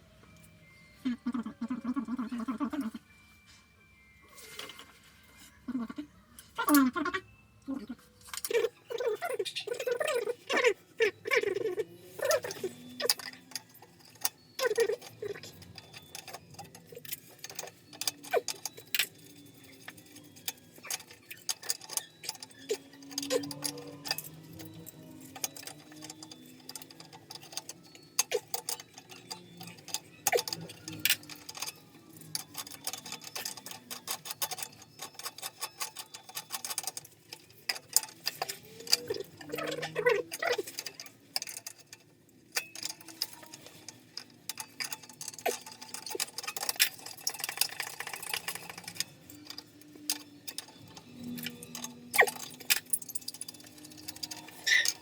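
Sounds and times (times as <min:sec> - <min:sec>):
clicking and clinking on pipes: 0:08.2 - 0:55.0.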